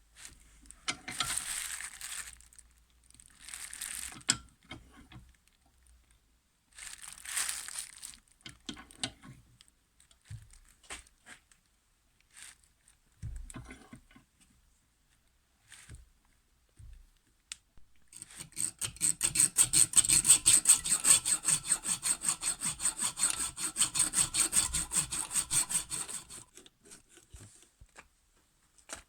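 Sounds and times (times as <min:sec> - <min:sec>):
paper or plastic wrapping crinkling: 0:01.2 - 0:02.6, 0:03.2 - 0:04.2, 0:06.8 - 0:08.3.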